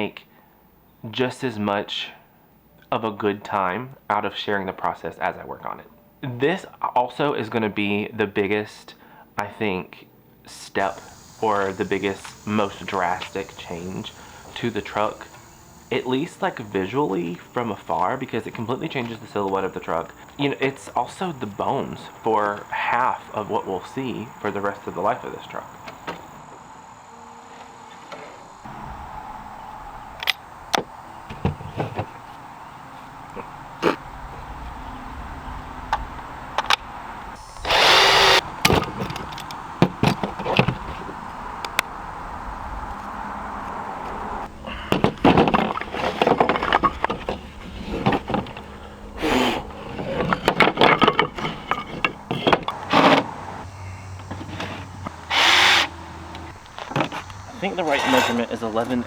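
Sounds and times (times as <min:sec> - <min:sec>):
wooden boards knocking together: 0:44.7 - 0:48.7, 0:50.0 - 0:53.3.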